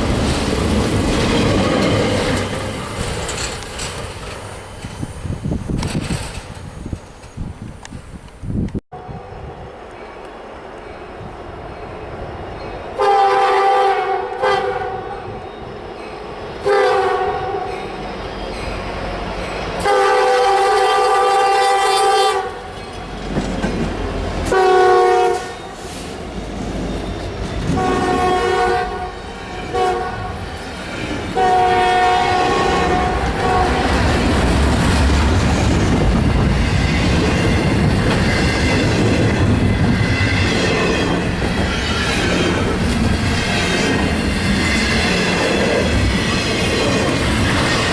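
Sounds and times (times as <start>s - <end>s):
train wheel clatter: 0.0s - 8.1s, 22.6s - 24.6s, 32.7s - 47.9s
train rumble: 0.0s - 47.9s
locomotive air horn blasts: 13.0s - 15.1s, 16.6s - 17.7s, 19.8s - 22.7s, 24.5s - 25.8s, 27.7s - 30.4s, 31.4s - 34.0s.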